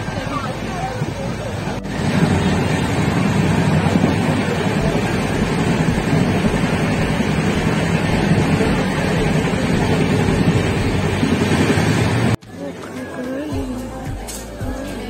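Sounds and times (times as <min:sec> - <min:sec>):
train wheels rumbling on track: 0:00.0 - 0:12.4
rushing air: 0:00.6 - 0:12.4.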